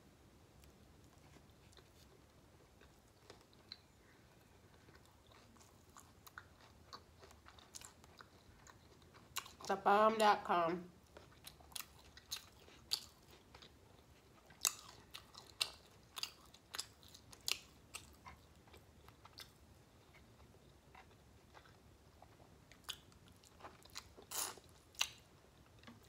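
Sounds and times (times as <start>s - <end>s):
person chewing food: 0.6s - 9.7s, 11.0s - 26.0s.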